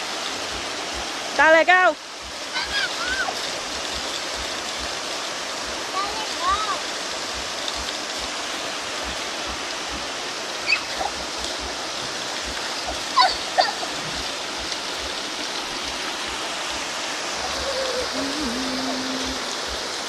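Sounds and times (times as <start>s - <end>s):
waterfall rushing: 0.0s - 20.0s
short high-pitched calls: 10.6s - 11.0s.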